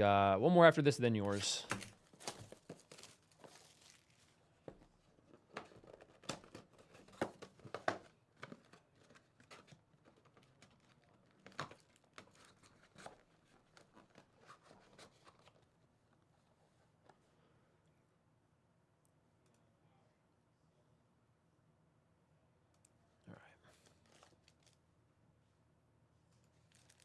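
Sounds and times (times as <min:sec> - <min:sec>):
plastic wrapping crinkling and tearing: 0:01.2 - 0:04.5, 0:05.6 - 0:15.4, 0:23.8 - 0:24.8, 0:26.5 - 0:27.0.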